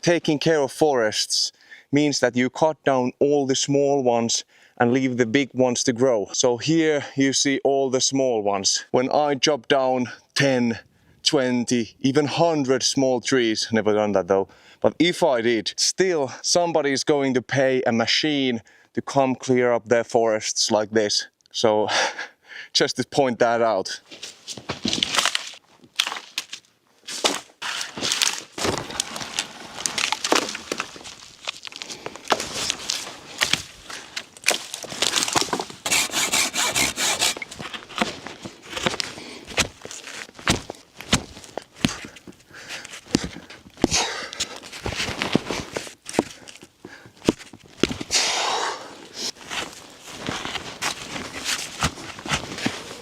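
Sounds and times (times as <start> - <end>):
footsteps: 24.0 - 48.2, 49.3 - 53.0
dry twigs crunching and snapping: 24.6 - 35.9, 37.4 - 48.1
wooden knocks of logs handled: 27.2 - 35.8
rasping scrape: 35.1 - 37.7.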